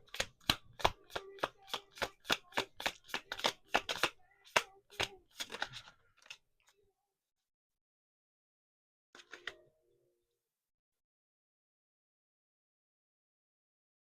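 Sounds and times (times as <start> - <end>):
cards being shuffled: 0.0 - 6.4.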